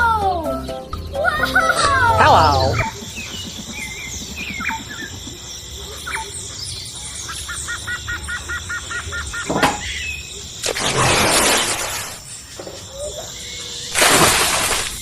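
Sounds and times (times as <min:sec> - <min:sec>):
birds chirping: 0:00.1 - 0:10.6.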